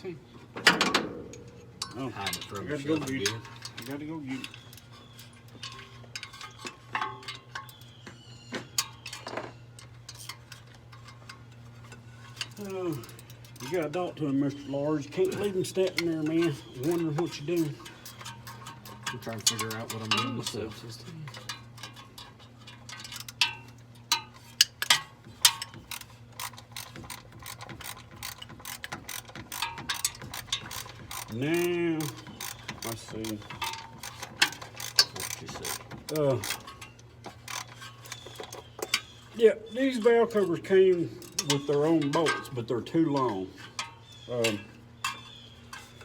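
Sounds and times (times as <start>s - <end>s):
steady low hum: 0.0s - 46.0s
metal tools clinking: 0.6s - 8.0s, 8.6s - 46.0s.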